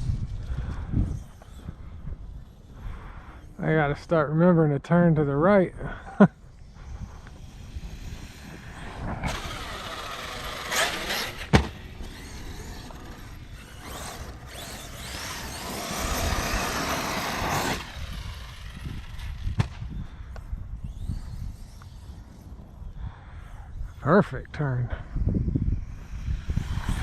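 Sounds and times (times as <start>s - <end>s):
rc truck motor whining: 6.4s - 23.5s, 25.4s - 27.0s.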